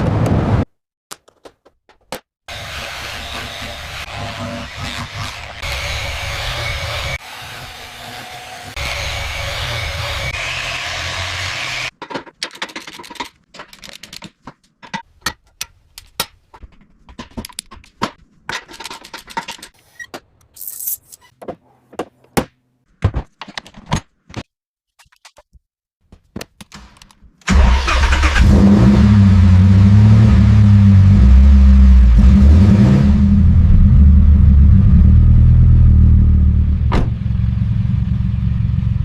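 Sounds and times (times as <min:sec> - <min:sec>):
sharp clicks and knocks: 0:11.9 - 0:20.3.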